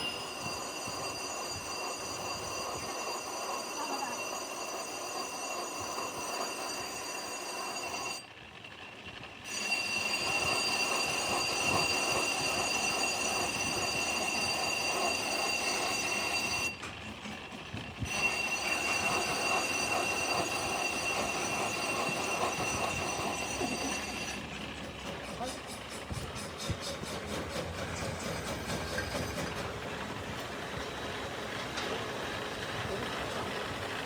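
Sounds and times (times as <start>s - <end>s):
metalworking machine grinding: 0.0s - 34.0s.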